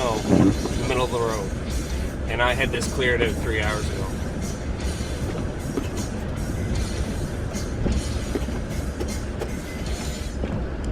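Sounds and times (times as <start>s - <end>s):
pickup truck engine rumble: 0.0s - 10.9s
plow knocking and clattering: 5.1s - 10.3s.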